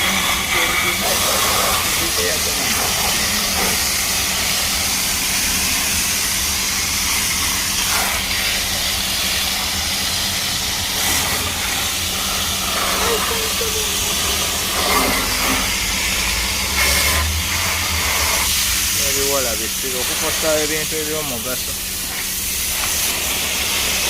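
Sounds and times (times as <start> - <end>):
spray jet hissing: 0.0 - 24.0.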